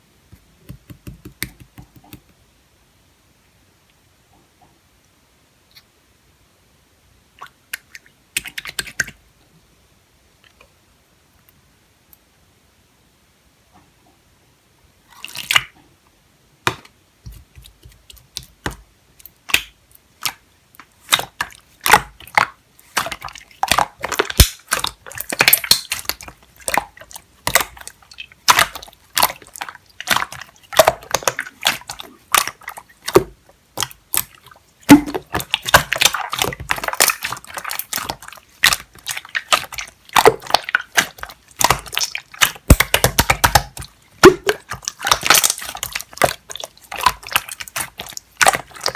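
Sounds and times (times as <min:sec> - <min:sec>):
slime squishing with sticky clicks: 0:00.4 - 0:02.4, 0:07.7 - 0:09.2, 0:16.6 - 0:48.9.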